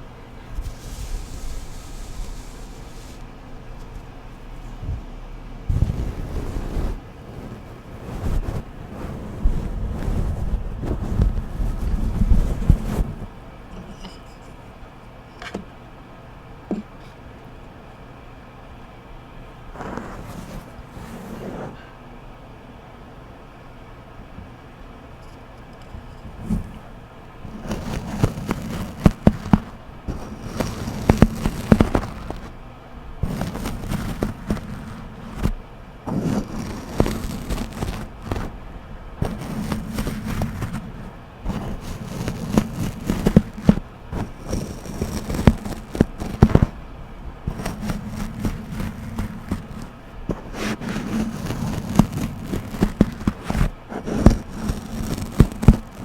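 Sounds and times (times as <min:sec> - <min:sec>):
paddle scraping covered microphone: 0:00.0 - 0:04.0, 0:05.7 - 0:14.0, 0:19.7 - 0:21.8, 0:26.0 - 0:32.6, 0:33.2 - 0:38.6, 0:39.2 - 0:46.8, 0:47.4 - 0:56.0.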